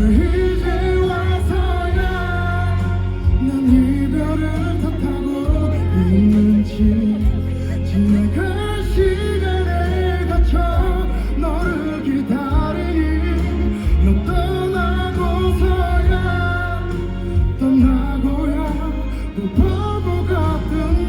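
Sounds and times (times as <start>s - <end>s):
bass guitar: 0.0s - 21.0s
live band playing pop ballad: 0.0s - 21.0s.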